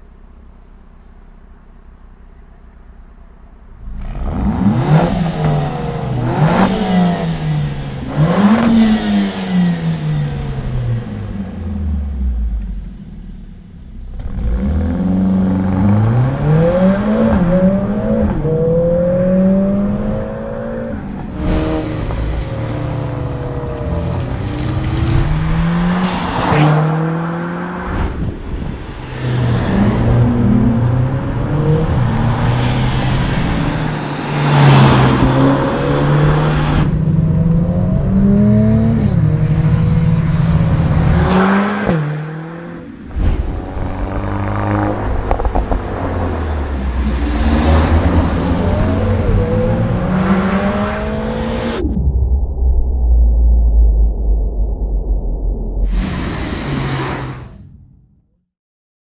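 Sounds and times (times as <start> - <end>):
car engine revving: 1.8 - 52.9
loud rushes of noise: 16.4 - 58.0.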